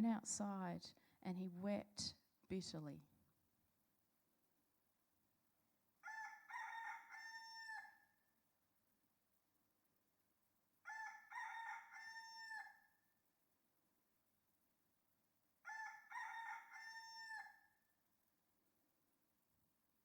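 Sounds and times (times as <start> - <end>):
rooster crowing: 6.0 - 8.2, 10.8 - 13.0, 15.6 - 17.8.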